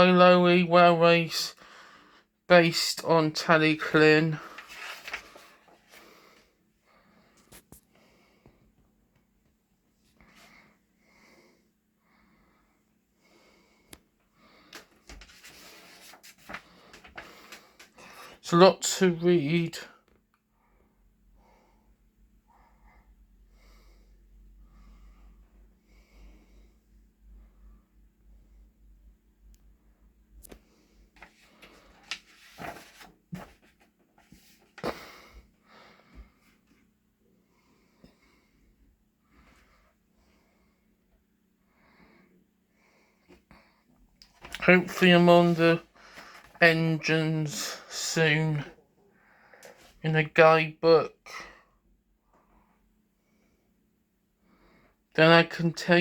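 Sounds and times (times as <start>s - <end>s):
close wheezy breathing: 1.6s - 2.4s
paper rustling: 3.9s - 6.2s, 14.7s - 18.4s, 31.2s - 35.0s, 44.2s - 46.6s.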